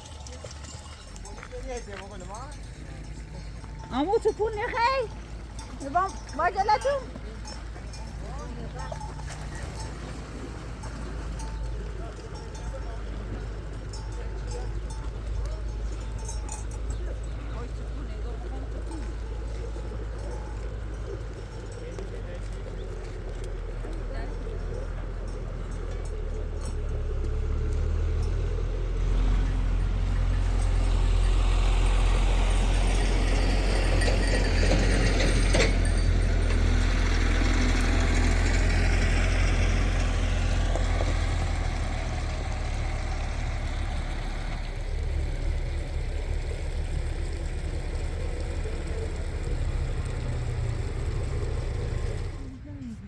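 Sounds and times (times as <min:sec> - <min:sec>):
vehicle engine rumbling: 0:00.0 - 0:53.0.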